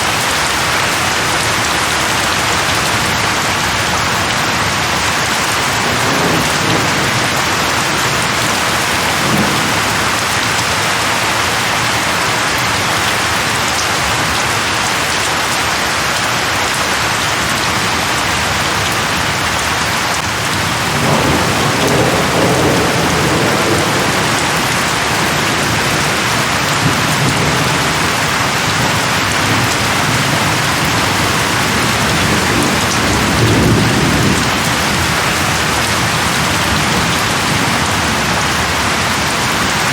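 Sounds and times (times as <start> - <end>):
heavy rain falling: 0.0 - 39.9
thunder rolling: 4.9 - 12.3, 20.2 - 39.7.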